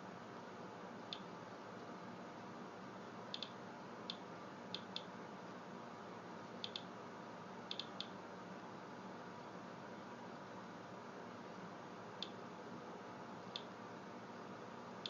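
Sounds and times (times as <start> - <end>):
geiger counter clicking: 3.4 - 4.2, 4.8 - 5.1, 6.6 - 6.9, 7.7 - 8.2, 13.5 - 13.7.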